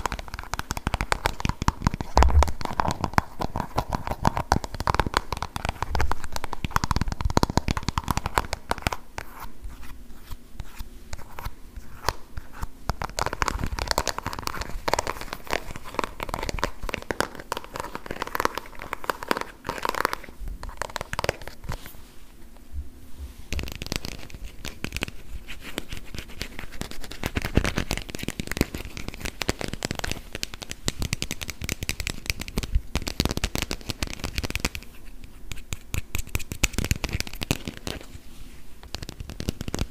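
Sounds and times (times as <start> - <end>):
fingers tapping on plastic: 0.0 - 9.0.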